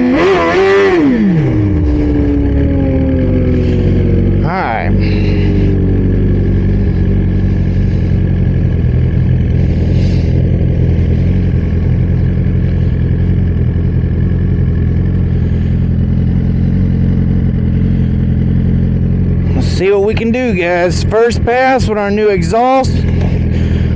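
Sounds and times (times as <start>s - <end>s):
motorcycle engine idling: 0.0s - 23.9s.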